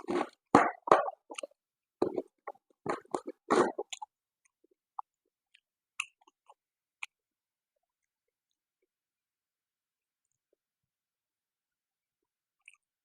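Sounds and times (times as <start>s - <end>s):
person chewing with wet smacks: 3.0s - 7.2s.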